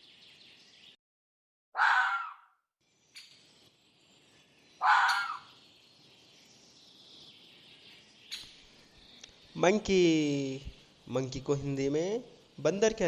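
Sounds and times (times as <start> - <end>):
fox barking: 1.8 - 2.5, 4.8 - 5.5
faint outdoor background noise: 1.8 - 13.0.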